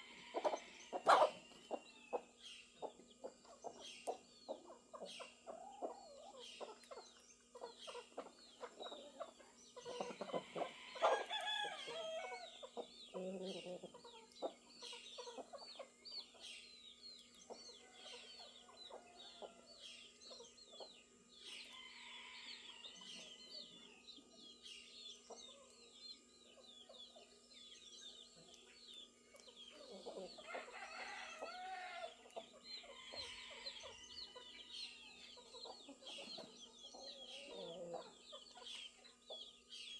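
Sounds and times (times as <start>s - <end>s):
chickens clucking: 0.0s - 39.9s
small birds chirping: 0.0s - 39.9s
rooster crowing: 10.4s - 12.5s, 21.8s - 23.0s, 30.4s - 32.2s, 32.8s - 35.1s.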